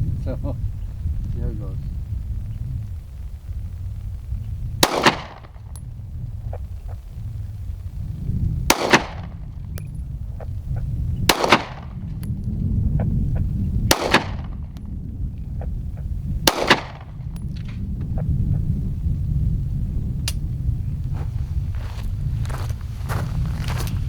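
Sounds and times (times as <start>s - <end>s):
steady low rumble: 0.0s - 24.0s
pistol shots: 4.8s - 5.8s, 8.7s - 9.5s, 11.3s - 12.0s, 13.9s - 14.8s, 16.4s - 17.7s.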